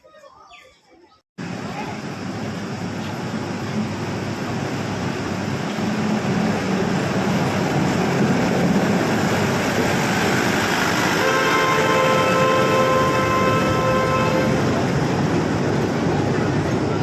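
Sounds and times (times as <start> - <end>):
train rumbling: 1.4 - 17.0
train horn: 11.0 - 14.9.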